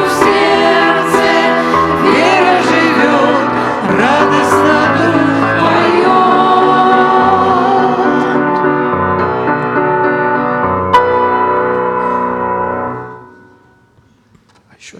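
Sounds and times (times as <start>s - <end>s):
person singing: 0.0s - 10.2s
keyboard accompaniment: 0.0s - 14.3s.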